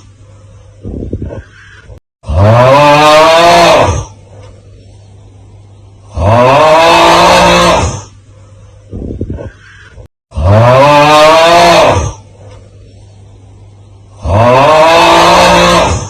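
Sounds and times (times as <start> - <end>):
low grunting: 6.1 - 8.1, 14.2 - 16.0.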